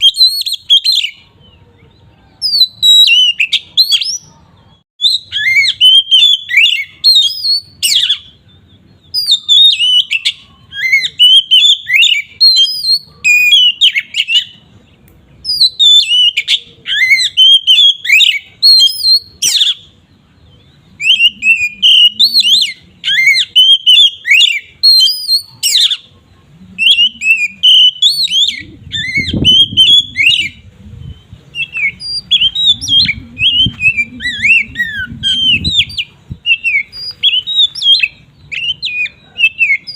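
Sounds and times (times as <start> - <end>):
bird singing whistled phrases: 0.0 - 4.4, 5.0 - 14.6, 15.4 - 20.0, 20.6 - 26.1, 26.8 - 39.9
low rumbling noise: 26.1 - 39.4.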